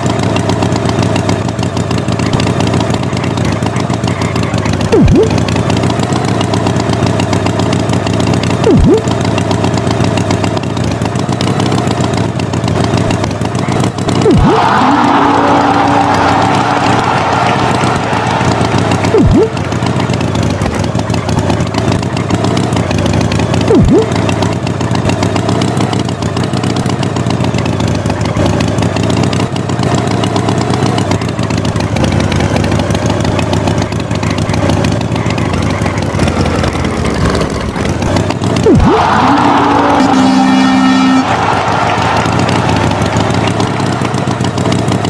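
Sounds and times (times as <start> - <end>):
motor engine running: 0.0 - 45.0
sweeps falling in pitch: 38.7 - 44.2.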